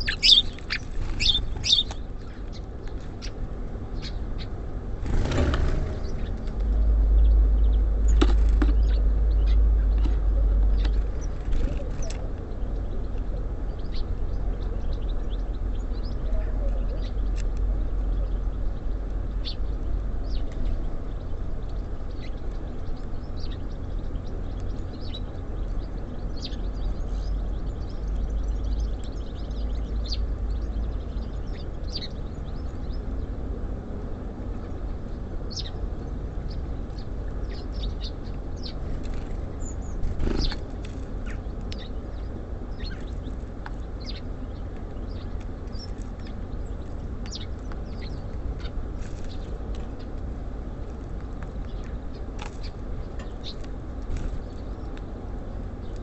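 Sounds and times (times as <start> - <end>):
songbirds chirping: 0.0 - 56.0
steady low rumble: 0.0 - 56.0.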